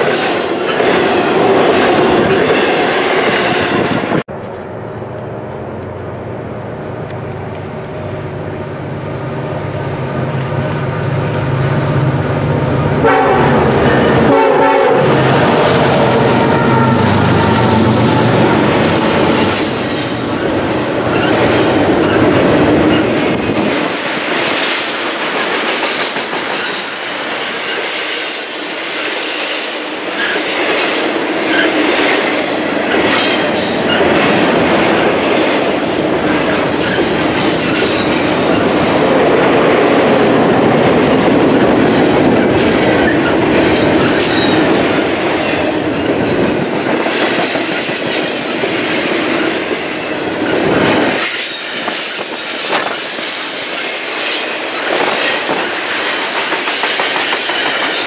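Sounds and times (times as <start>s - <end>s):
train wheels rumbling on rails: 0.0s - 58.0s
high wheel squeals: 49.3s - 52.3s.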